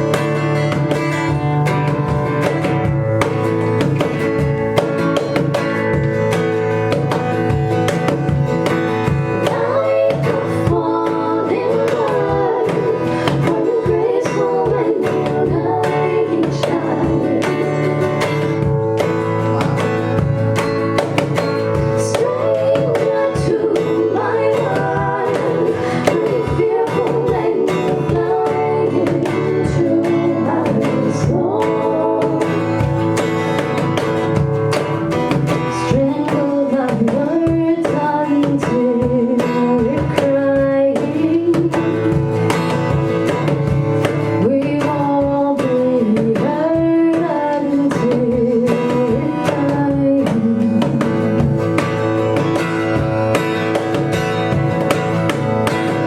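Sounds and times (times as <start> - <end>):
guitar accompaniment: 0.0 - 56.0
woman singing slow melody: 9.3 - 18.0, 21.9 - 32.8, 35.7 - 42.5, 44.4 - 51.5.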